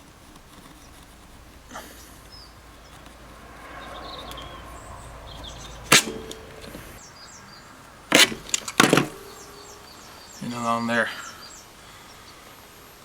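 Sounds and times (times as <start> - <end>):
faint bird chirps: 1.7 - 13.0
sharp knock on metal frame: 5.9 - 6.8, 8.1 - 9.3.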